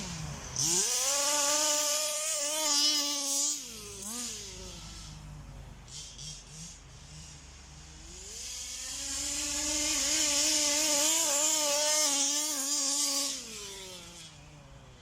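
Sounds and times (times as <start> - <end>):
rc car two-stroke engine revving: 0.0 - 15.0.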